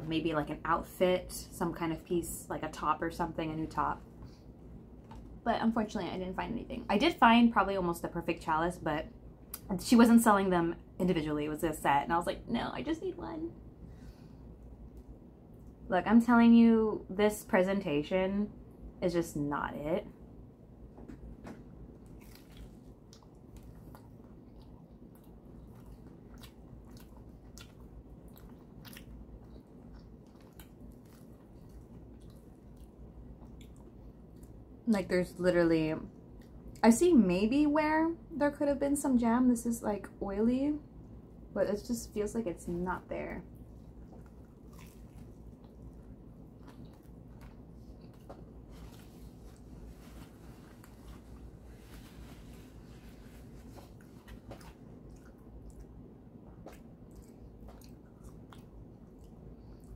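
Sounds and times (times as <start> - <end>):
chewing sandwich with crunches: 21.9 - 34.7, 43.6 - 52.4, 53.4 - 59.9.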